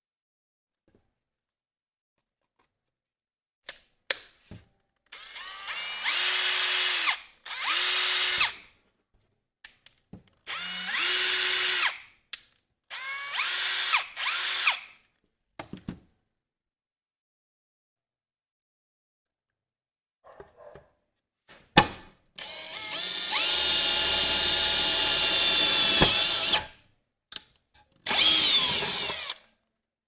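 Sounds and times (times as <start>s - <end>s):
cordless drill motor whining: 5.1s - 8.6s, 10.5s - 12.0s, 12.9s - 14.8s, 22.4s - 26.7s, 28.1s - 29.4s.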